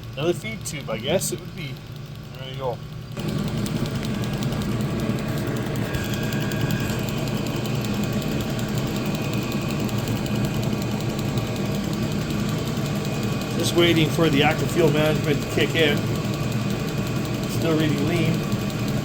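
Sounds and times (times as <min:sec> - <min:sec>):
diesel heater combustion rumble: 0:00.0 - 0:19.0.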